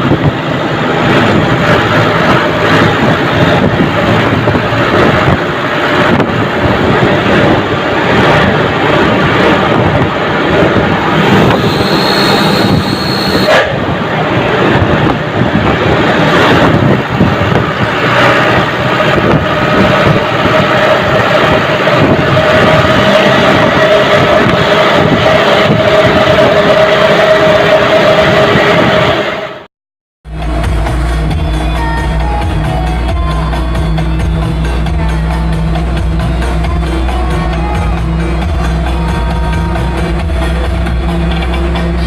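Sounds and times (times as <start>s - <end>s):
truck diesel engine running: 0.0s - 29.6s, 30.2s - 42.0s
wind noise: 0.0s - 29.6s
road noise: 0.0s - 42.0s
faint high whistle: 11.5s - 13.6s.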